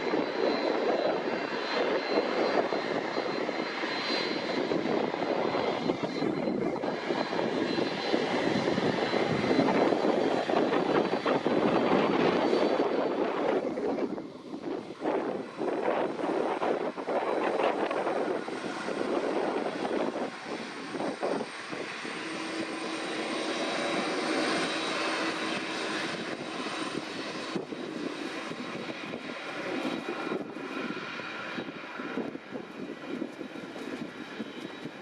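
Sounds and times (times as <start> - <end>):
jet engines at taxi power: 0.0 - 35.0.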